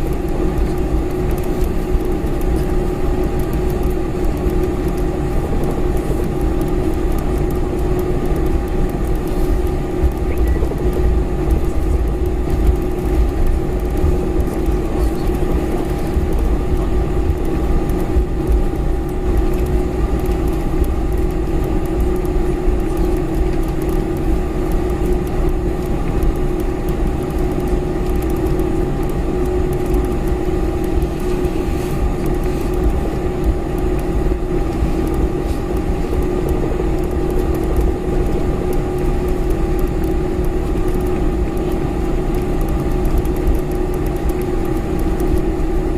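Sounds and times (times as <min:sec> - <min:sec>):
constant cabin hums: 0:00.0 - 0:45.9
jet engines running: 0:00.0 - 0:45.9.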